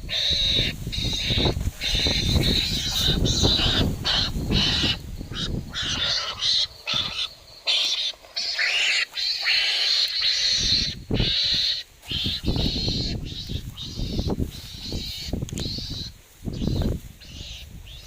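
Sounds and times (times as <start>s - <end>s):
shrill animal cries: 0.1s - 17.6s.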